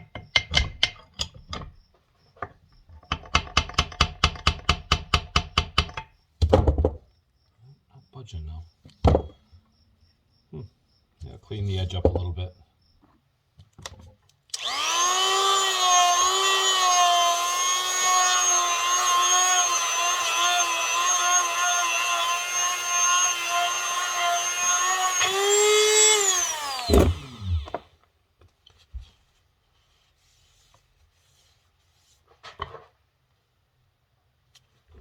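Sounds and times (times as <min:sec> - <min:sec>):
grinder whining on metal: 0:14.6 - 0:27.9
grinder winding down: 0:14.6 - 0:27.9.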